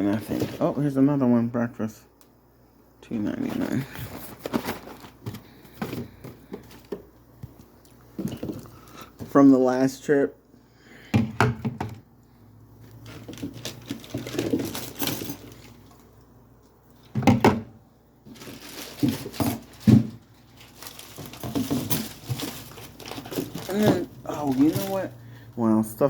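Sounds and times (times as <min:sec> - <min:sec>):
groceries knocking and clattering: 0:00.0 - 0:01.0, 0:03.3 - 0:09.5, 0:11.0 - 0:12.1, 0:12.8 - 0:16.2, 0:17.0 - 0:25.5.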